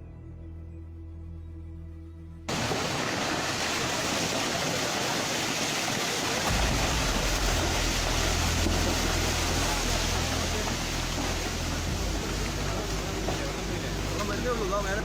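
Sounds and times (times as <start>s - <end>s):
storm wind and water rushing: 2.5s - 15.0s
deep rumble: 6.5s - 15.0s.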